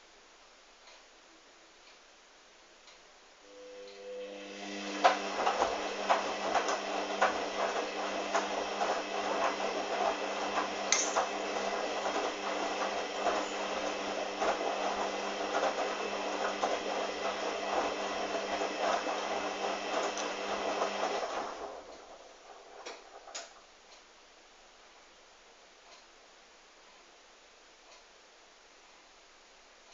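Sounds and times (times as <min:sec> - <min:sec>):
washing machine motor humming: 0:03.5 - 0:23.4.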